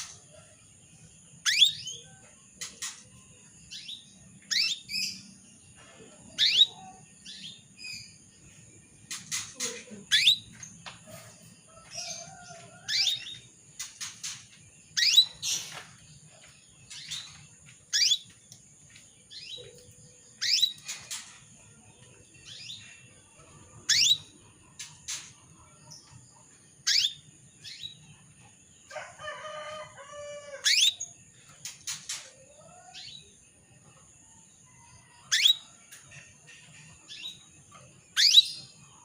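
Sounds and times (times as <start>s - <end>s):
canary chirping: 1.4s - 3.0s, 3.7s - 5.4s, 6.4s - 8.3s, 9.1s - 10.8s, 11.9s - 15.8s, 16.4s - 18.4s, 19.2s - 21.3s, 22.1s - 25.2s, 26.8s - 28.1s, 30.6s - 33.2s, 35.2s - 35.8s, 36.5s - 38.8s.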